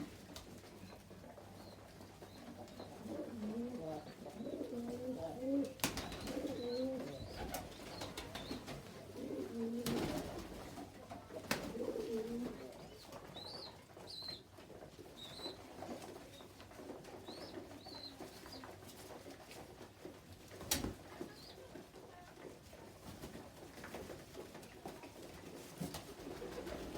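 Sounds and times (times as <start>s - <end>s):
pigeons cooing: 2.4s - 10.6s, 11.4s - 12.9s.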